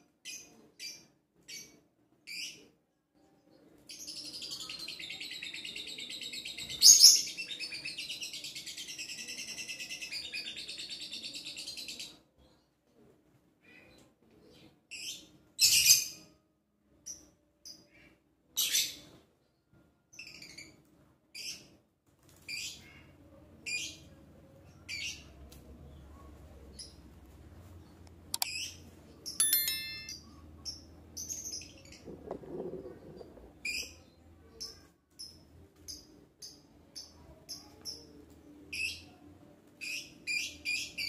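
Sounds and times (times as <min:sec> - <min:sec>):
steady high tones: 0:29.4 - 0:30.2.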